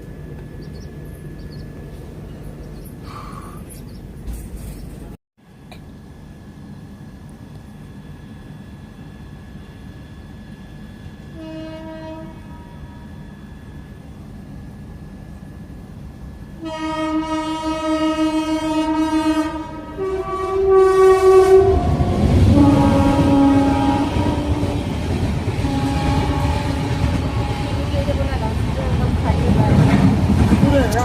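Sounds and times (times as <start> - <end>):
low rumble of train: 0.0 - 31.0
locomotive horn blasts: 11.4 - 13.4, 16.6 - 28.5.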